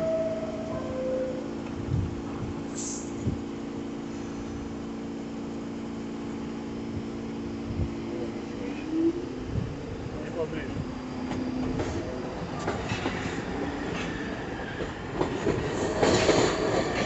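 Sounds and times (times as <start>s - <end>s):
subway car electric hum: 0.0s - 17.0s
air hiss: 2.7s - 3.3s.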